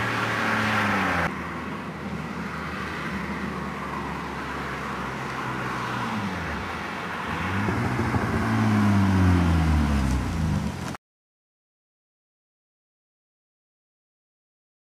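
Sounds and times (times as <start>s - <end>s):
car engine revving: 5.9s - 11.0s.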